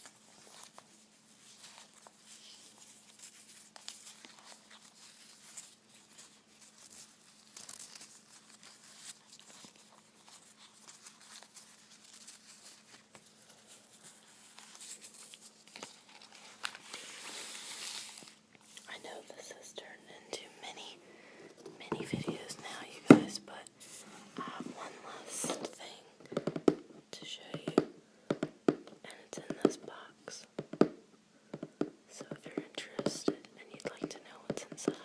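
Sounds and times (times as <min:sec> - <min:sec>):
crinkly material rustling: 0:00.0 - 0:19.8
faint steady hum: 0:00.0 - 0:35.0.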